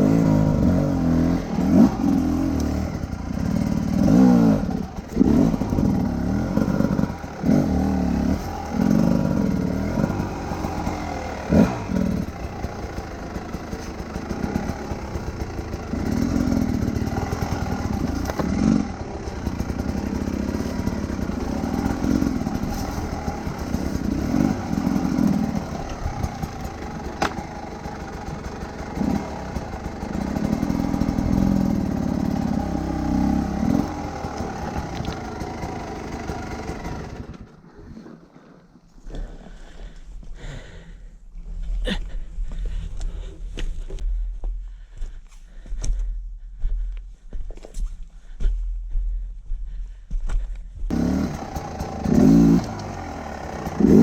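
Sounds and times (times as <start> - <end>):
motorcycle engine revving: 0.0 - 38.6, 50.9 - 54.0.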